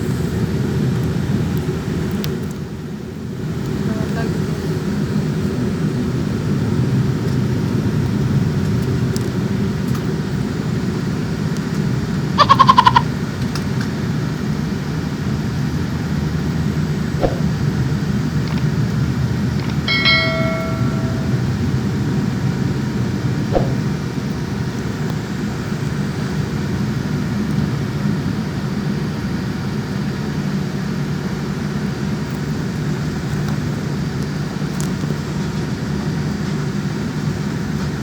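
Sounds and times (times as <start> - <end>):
cabin chime: 19.9 - 21.9.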